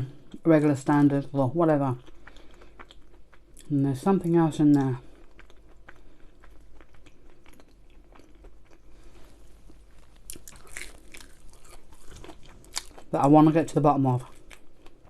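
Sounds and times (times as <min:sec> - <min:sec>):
close chewing of food: 0:00.0 - 0:15.0.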